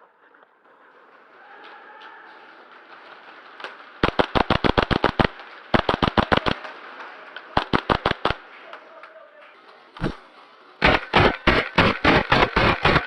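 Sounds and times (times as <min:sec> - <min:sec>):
airsoft rifle full-auto bursts: 0:04.0 - 0:06.6, 0:07.6 - 0:08.5, 0:10.8 - 0:13.0.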